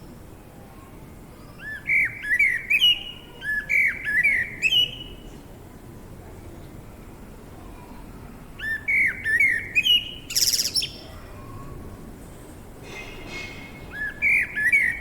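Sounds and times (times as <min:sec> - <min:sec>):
songbird chirping: 0:08.6 - 0:11.1.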